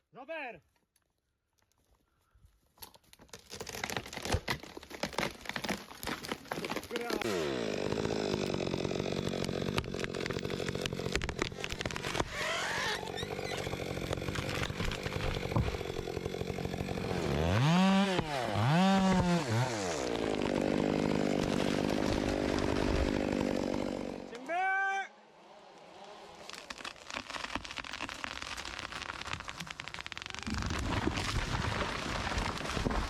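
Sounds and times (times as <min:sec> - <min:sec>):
chainsaw engine revving: 0:06.9 - 0:24.5.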